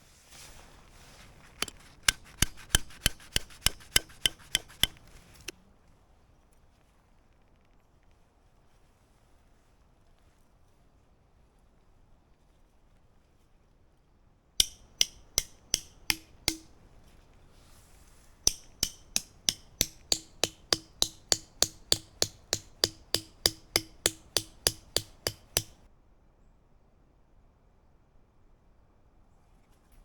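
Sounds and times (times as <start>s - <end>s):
hammer blows ringing: 2.1s - 5.0s, 14.6s - 16.8s, 18.5s - 25.8s.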